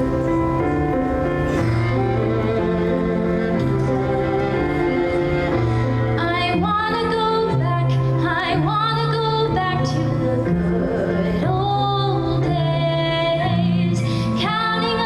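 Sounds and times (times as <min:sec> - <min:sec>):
low held accompaniment notes: 0:00.0 - 0:15.0.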